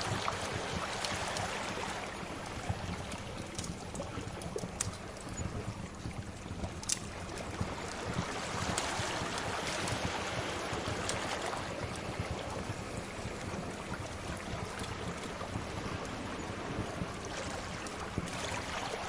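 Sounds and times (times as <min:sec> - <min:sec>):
wood fire crackling and popping: 0:03.2 - 0:05.3, 0:06.6 - 0:09.4.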